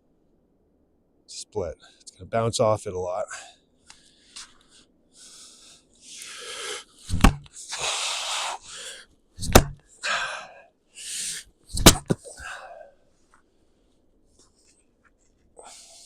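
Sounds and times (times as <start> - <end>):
hard breathing: 3.3 - 9.1, 10.0 - 11.5, 12.2 - 13.8, 15.6 - 16.0
axe striking firewood: 7.1 - 7.5, 9.4 - 9.8, 11.7 - 12.2.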